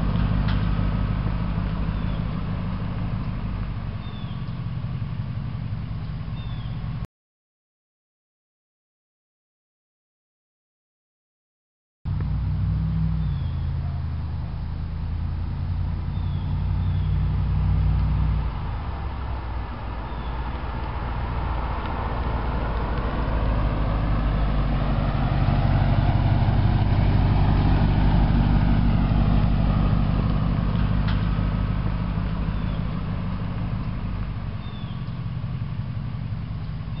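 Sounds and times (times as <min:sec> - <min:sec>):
sports car passing by: 0:12.1 - 0:37.0.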